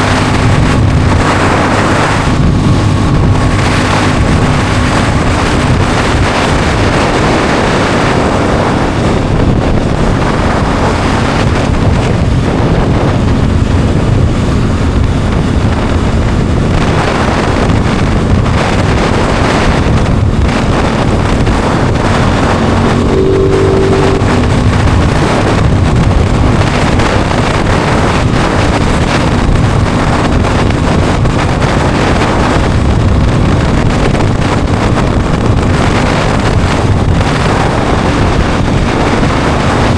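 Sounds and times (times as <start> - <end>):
motorcycle engine running: 0.0 - 39.9
wind noise on microphone: 0.0 - 39.9
brief steady tone: 22.5 - 25.9.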